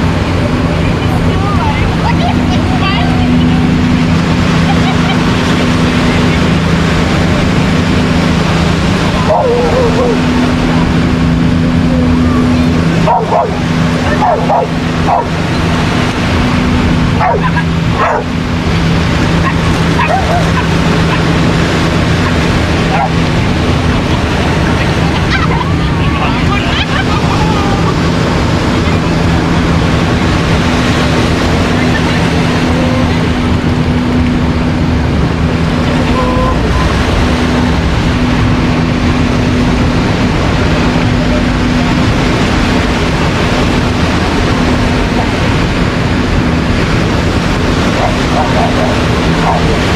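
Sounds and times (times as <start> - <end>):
low steady hum: 0.0 - 49.9
surf: 0.0 - 49.9
wind noise: 0.0 - 49.9
dogs barking: 9.2 - 10.4, 13.0 - 15.5, 17.2 - 18.4, 19.4 - 21.3, 22.3 - 23.3, 47.8 - 49.9.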